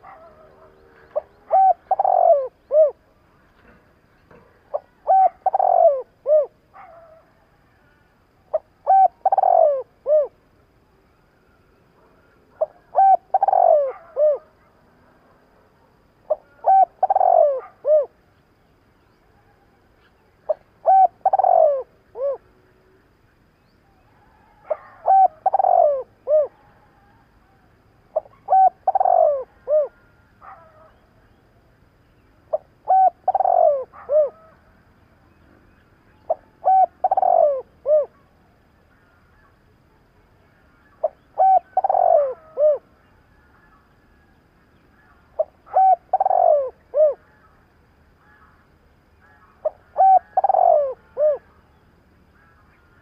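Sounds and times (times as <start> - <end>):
dove cooing: 0.0 - 7.3, 8.5 - 10.4, 12.1 - 14.7, 15.9 - 18.2, 20.5 - 22.6, 24.2 - 27.2, 28.1 - 31.1, 32.4 - 34.7, 36.3 - 38.4, 40.8 - 43.6, 45.0 - 47.6, 49.2 - 51.6.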